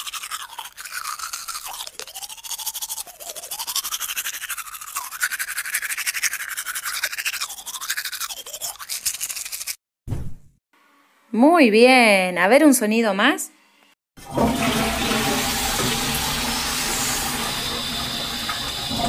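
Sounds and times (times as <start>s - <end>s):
toothbrush scrubbing teeth: 0.0s - 9.8s.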